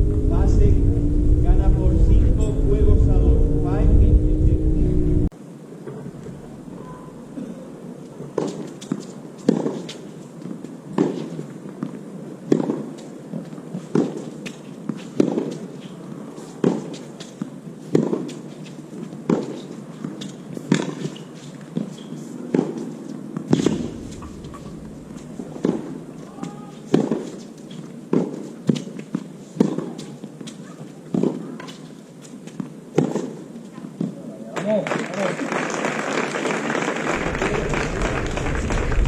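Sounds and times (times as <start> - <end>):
tennis rackets striking ball: 12.5 - 12.9, 16.6 - 18.4, 25.2 - 27.4, 28.1 - 31.8.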